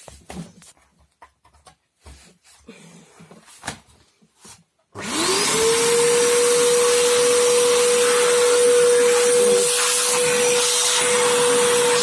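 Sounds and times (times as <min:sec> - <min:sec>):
vacuum cleaner motor whine: 0:05.0 - 0:12.0.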